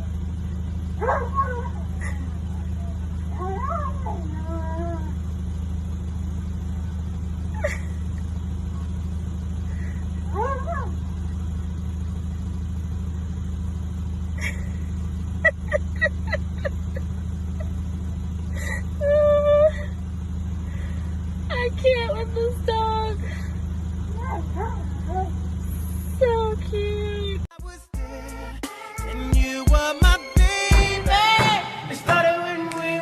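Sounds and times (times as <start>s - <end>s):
steady low hum: 0.0s - 29.3s
dog yipping: 1.0s - 5.1s, 10.3s - 11.0s, 24.2s - 25.4s
dog whining: 1.0s - 5.2s, 10.3s - 11.0s, 24.1s - 25.4s.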